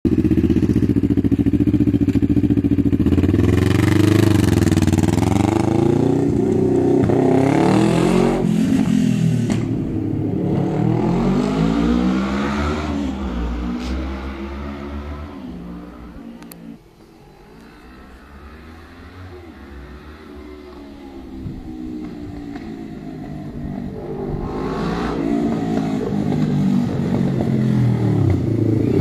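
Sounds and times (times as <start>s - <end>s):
motorcycle engine idling and revving: 0.1s - 29.0s.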